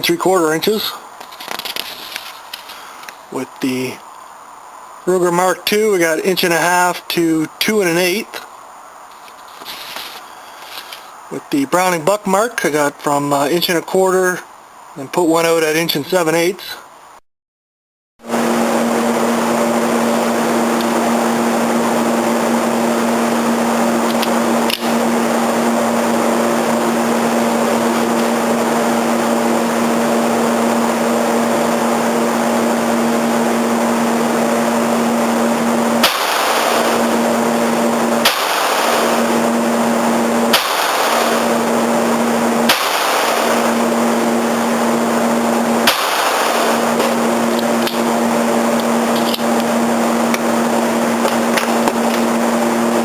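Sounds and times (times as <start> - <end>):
steady hum: 0.0 - 17.2, 18.2 - 53.0
pistol shots: 36.0 - 37.2, 38.2 - 39.4, 40.5 - 41.8, 42.7 - 43.8, 45.8 - 47.2.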